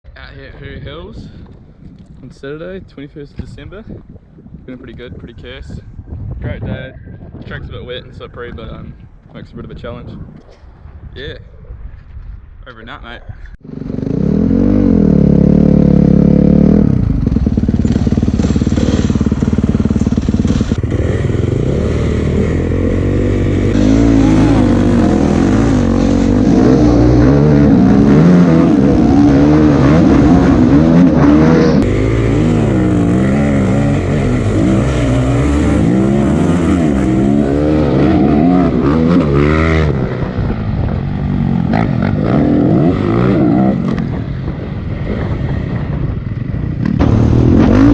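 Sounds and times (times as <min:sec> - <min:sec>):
dirt bike engine revving: 0:13.6 - 0:44.4, 0:46.8 - 0:47.9.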